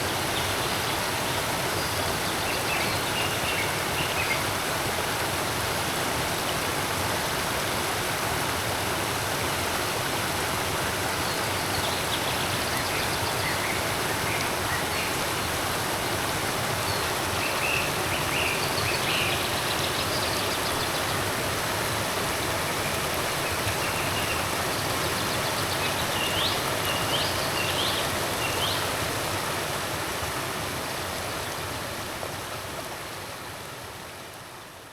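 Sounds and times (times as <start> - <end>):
creek water flowing: 0.0 - 34.9.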